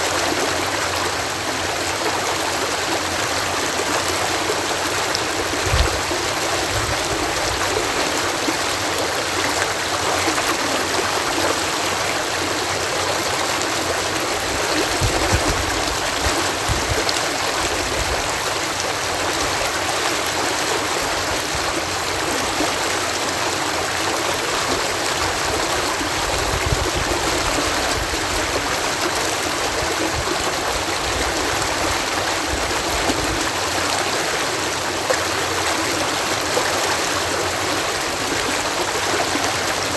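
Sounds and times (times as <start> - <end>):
water pouring over canal lock: 0.1 - 39.9
low thuds and gurgles: 5.3 - 8.0, 14.3 - 18.5, 26.2 - 28.6.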